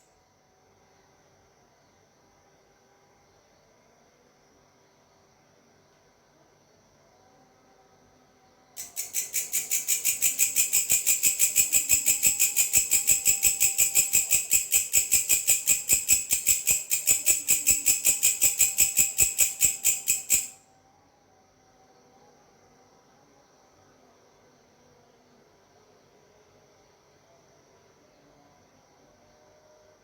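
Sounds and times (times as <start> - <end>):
grasshopper stridulating: 8.8 - 20.6.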